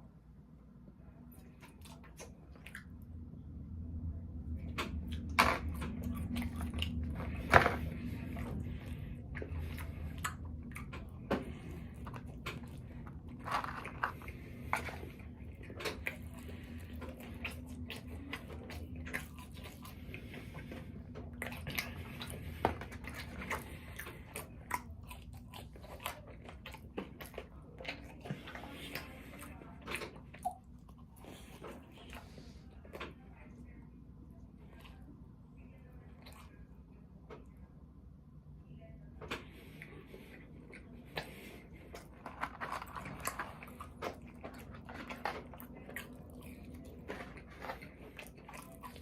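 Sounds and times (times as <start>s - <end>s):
steady low hum: 0.0s - 49.0s
wet chewing and smacking: 1.3s - 3.4s, 4.4s - 33.3s, 39.2s - 49.0s
food crunching: 4.6s - 33.2s, 39.3s - 49.0s.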